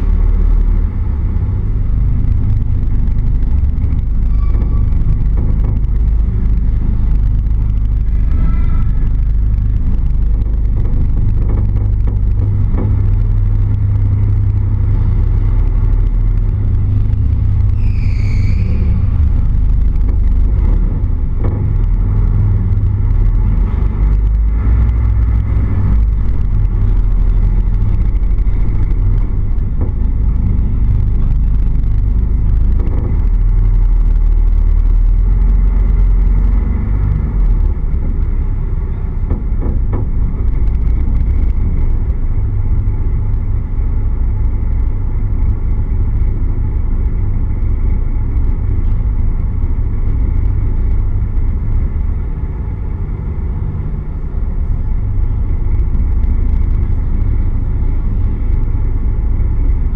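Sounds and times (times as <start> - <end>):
car engine rumbling: 0.0 - 59.9
brief high squeal: 4.3 - 5.0, 17.7 - 19.1.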